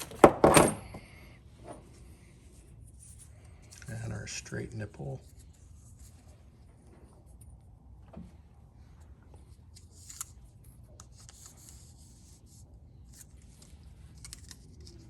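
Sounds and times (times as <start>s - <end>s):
tape rubbing and rustling: 1.8s - 7.5s, 8.8s - 15.0s.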